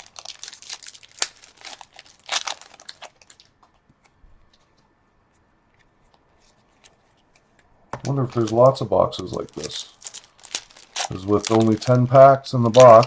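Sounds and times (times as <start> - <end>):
foil wrapper crinkling: 0.0 - 3.6, 8.0 - 13.0
wrapper tearing open: 0.0 - 3.6, 8.0 - 13.0.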